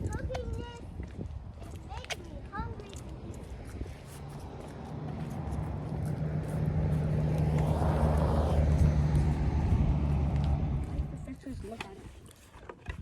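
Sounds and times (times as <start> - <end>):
car passing by: 3.6 - 11.4.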